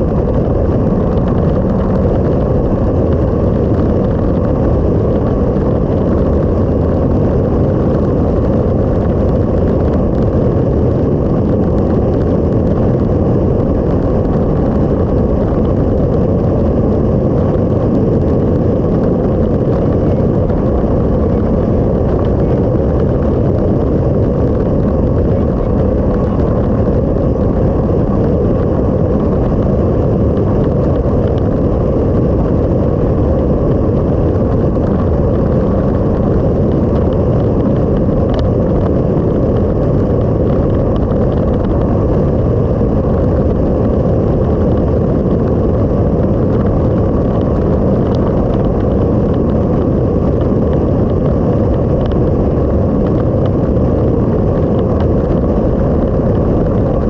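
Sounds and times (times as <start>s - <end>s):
motorcycle road noise: 0.0s - 57.0s
wind rumble: 0.0s - 57.0s.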